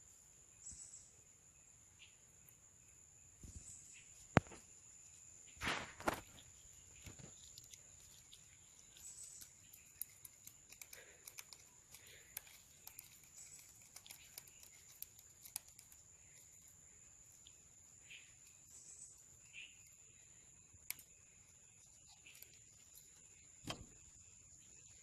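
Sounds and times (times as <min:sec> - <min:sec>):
faint clicks and ticks: 0:07.0 - 0:16.7, 0:19.4 - 0:23.8.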